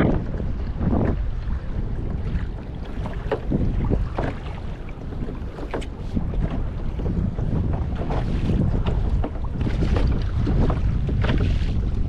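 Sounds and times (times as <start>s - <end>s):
wind buffeting microphone: 0.0s - 12.0s
splashes or knocks: 2.4s - 6.7s.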